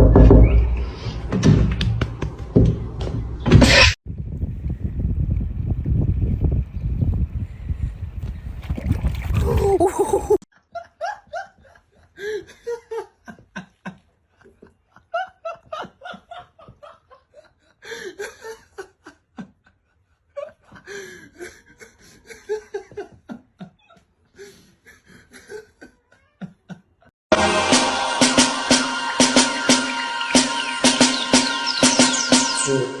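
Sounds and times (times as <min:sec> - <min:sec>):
people laughing: 0:09.6 - 0:19.8.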